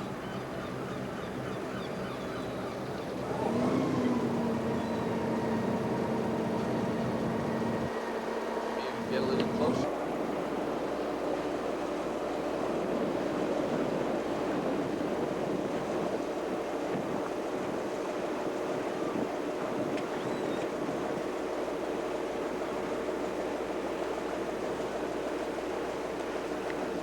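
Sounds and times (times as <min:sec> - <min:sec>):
boat engine humming: 0:00.0 - 0:27.0
water rushing: 0:02.7 - 0:27.0
wind on microphone: 0:12.4 - 0:21.4.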